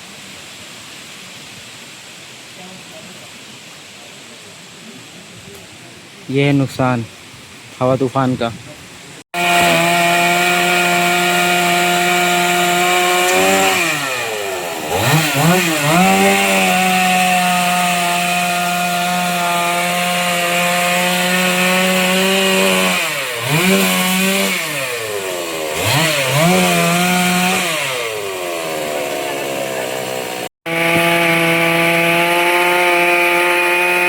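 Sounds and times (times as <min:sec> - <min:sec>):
chainsaw running at high revs: 0:09.3 - 0:34.0.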